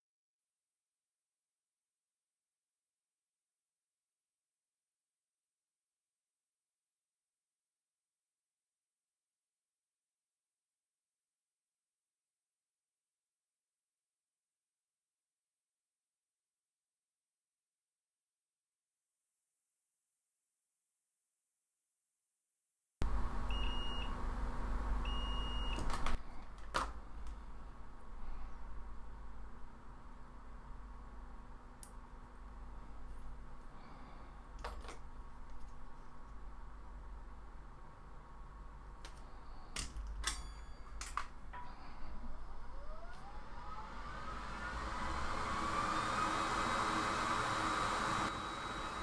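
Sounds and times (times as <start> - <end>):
hot-air station fan whine: 23.0 - 26.2, 43.4 - 49.0
equipment hum and hiss: 23.0 - 42.7
short electronic beeps: 23.4 - 24.2, 25.0 - 25.9.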